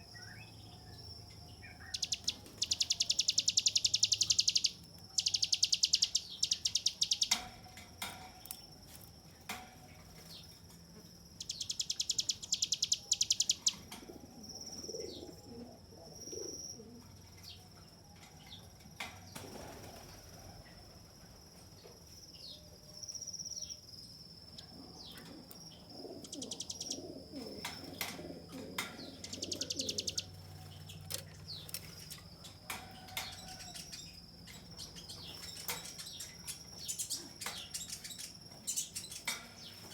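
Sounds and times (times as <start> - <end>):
bird rattling trills: 1.8 - 7.7, 11.4 - 13.9, 25.7 - 39.9.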